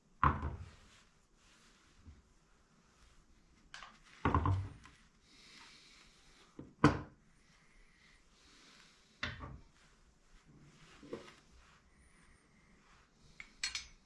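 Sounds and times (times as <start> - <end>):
faint rustling: 7.3 - 14.0.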